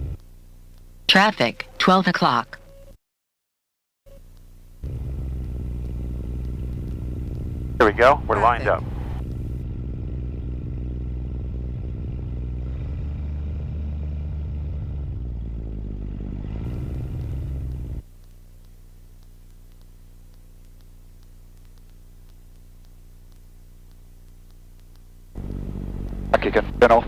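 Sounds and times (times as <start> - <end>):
airplane engine running: 4.8 - 13.9, 25.3 - 27.0.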